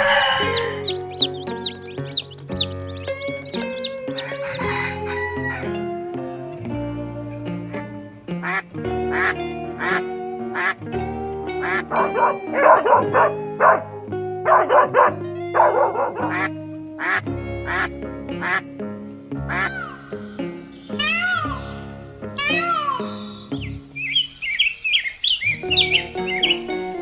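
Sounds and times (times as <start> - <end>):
duck quacking: 0.0 - 5.8, 7.7 - 10.9, 11.5 - 18.7, 19.4 - 26.9
music with steady beat: 0.0 - 24.0.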